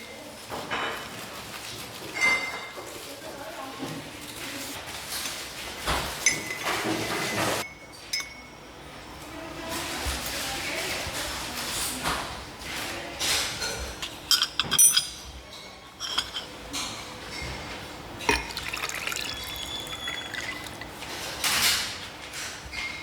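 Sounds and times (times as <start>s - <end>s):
glass clinks: 7.7s - 8.6s, 14.3s - 15.2s, 18.3s - 20.9s
liquid pouring into glass: 18.2s - 21.3s.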